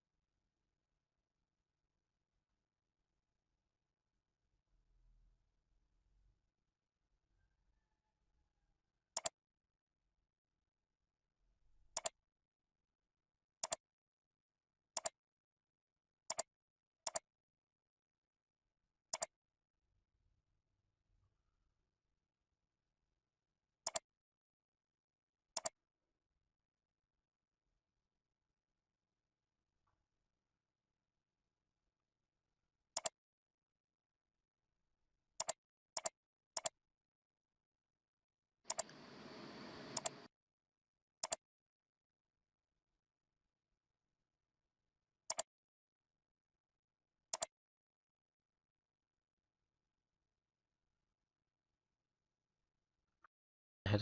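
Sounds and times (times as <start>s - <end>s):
computer mouse clicking: 9.2s - 9.4s, 11.9s - 12.2s, 13.6s - 13.8s, 15.0s - 15.2s, 16.3s - 16.5s, 17.1s - 17.3s, 19.1s - 19.4s, 23.9s - 24.1s, 25.6s - 25.8s, 33.0s - 33.2s, 35.4s - 36.8s, 38.7s - 40.3s, 45.3s - 45.5s, 47.3s - 47.6s
faint hiss: 38.8s - 40.3s.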